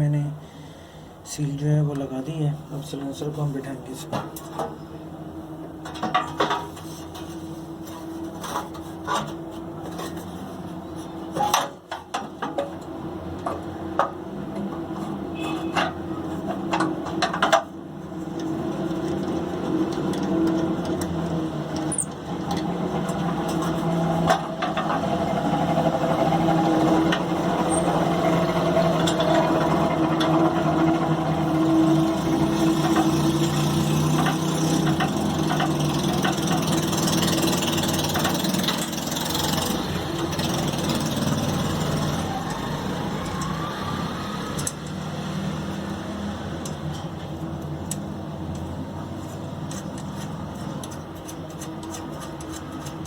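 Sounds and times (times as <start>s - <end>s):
steady machine hum: 12.8s - 43.5s.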